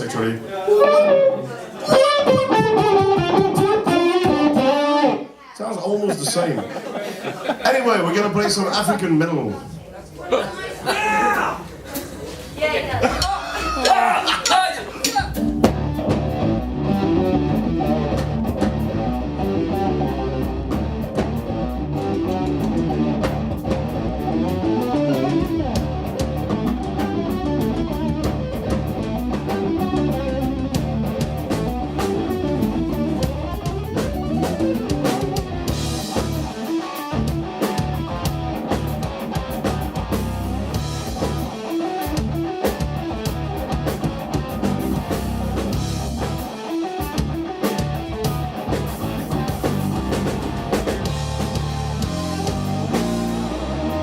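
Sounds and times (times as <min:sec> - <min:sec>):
metal band playing: 0:00.0 - 0:05.3, 0:10.3 - 0:54.0
drum hits: 0:13.9 - 0:19.2, 0:20.6 - 0:53.6.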